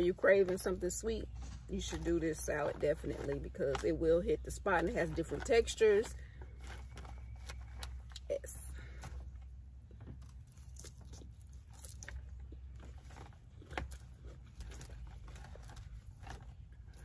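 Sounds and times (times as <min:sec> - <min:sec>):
low steady hum: 0:00.0 - 0:17.0
person chewing crunchy food: 0:05.2 - 0:17.0.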